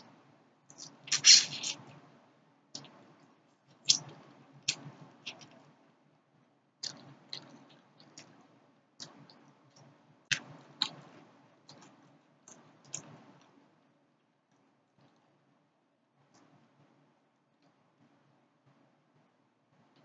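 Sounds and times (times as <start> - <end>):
wet chewing with mouth smacks: 6.8 - 8.4.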